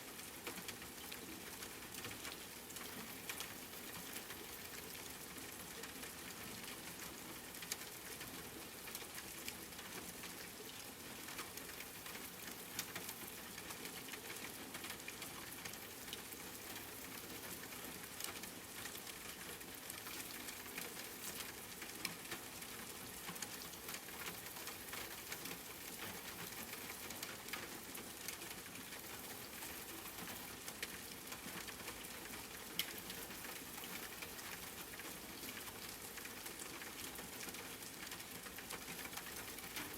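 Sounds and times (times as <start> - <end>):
steady rain patter: 0.0 - 39.9
raindrops ticking: 0.1 - 39.9.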